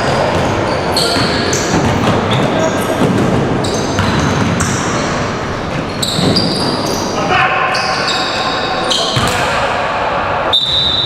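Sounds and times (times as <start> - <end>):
voices echoing in a hall: 0.0 - 11.0
ball bouncing: 0.2 - 4.9
high-pitched shoe squeaks: 5.9 - 7.1.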